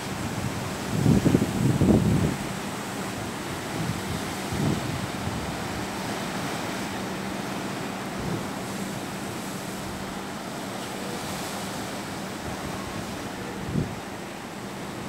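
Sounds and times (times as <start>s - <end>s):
wind buffeting microphone: 0.0s - 6.8s, 12.4s - 14.2s
ocean surf washing: 0.0s - 15.0s.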